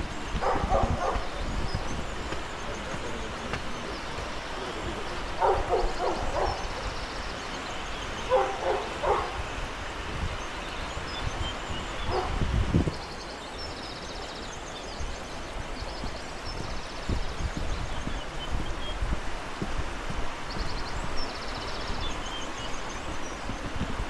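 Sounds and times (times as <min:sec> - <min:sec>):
dog barking: 0:00.4 - 0:01.4, 0:05.4 - 0:06.8, 0:08.3 - 0:09.4, 0:12.1 - 0:12.4.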